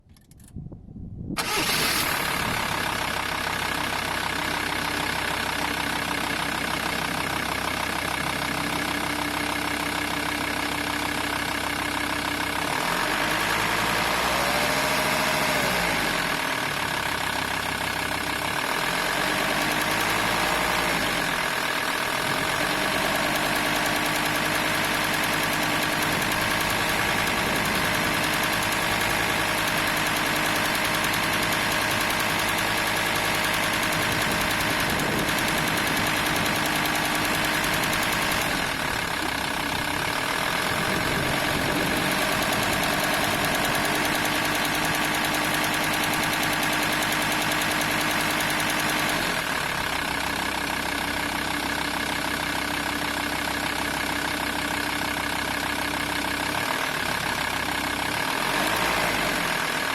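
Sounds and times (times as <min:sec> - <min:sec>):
diesel engine idling: 0:01.4 - 0:59.9
engine belt rattle: 0:01.4 - 0:59.9.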